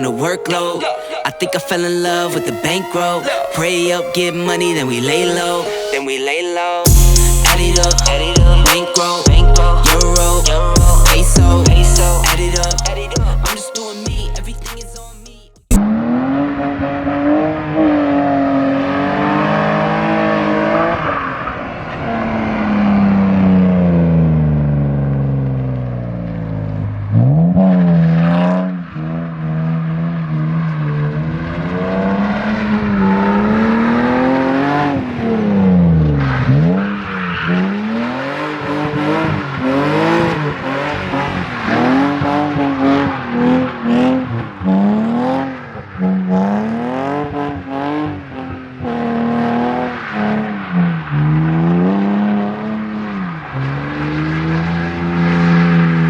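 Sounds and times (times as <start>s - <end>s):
car engine revving hard: 15.8s - 25.7s, 27.1s - 56.0s.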